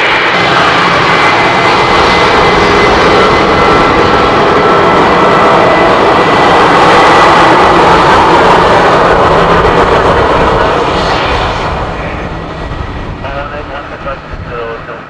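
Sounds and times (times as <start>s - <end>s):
jet engines roaring past: 0.0s - 15.0s.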